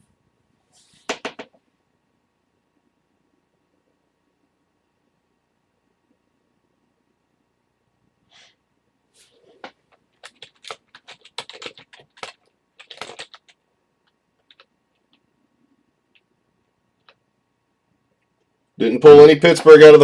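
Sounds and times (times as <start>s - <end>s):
computer keyboard typing: 9.6s - 15.3s, 17.0s - 17.2s.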